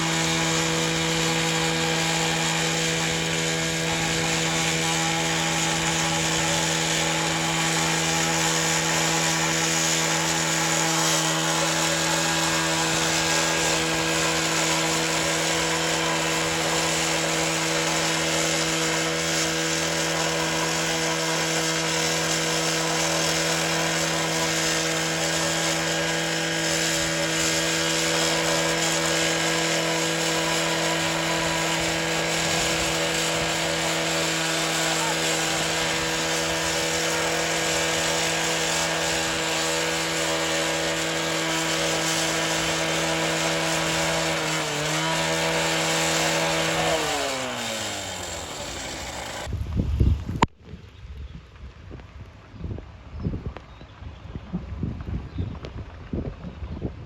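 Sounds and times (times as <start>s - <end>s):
cut-off saw engine running: 0.0s - 49.5s.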